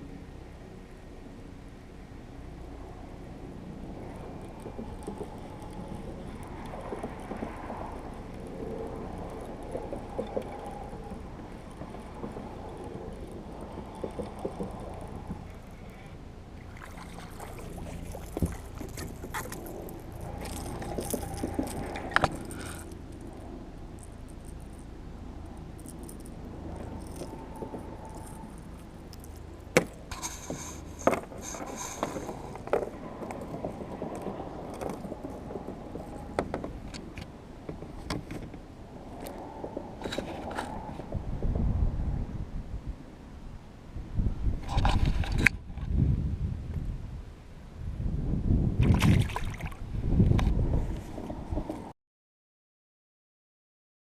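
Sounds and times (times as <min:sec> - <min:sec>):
low background rumble: 0:00.0 - 0:51.9
water sloshing against kayak hull: 0:04.0 - 0:24.8
water splashes: 0:13.6 - 0:24.8, 0:48.8 - 0:49.9.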